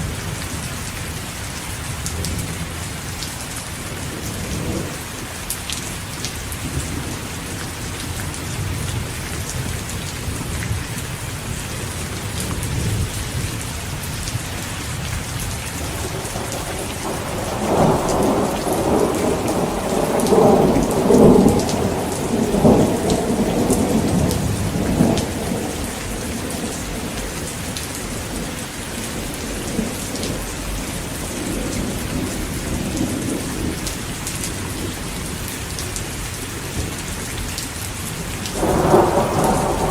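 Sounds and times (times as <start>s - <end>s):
heavy rain falling: 0.0s - 39.9s
rolling thunder rumble: 6.6s - 35.5s, 38.2s - 39.9s.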